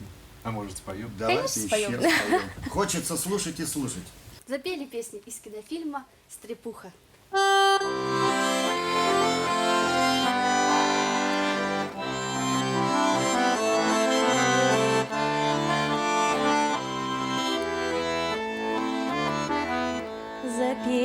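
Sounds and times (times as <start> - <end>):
accordion playing: 7.3 - 21.0.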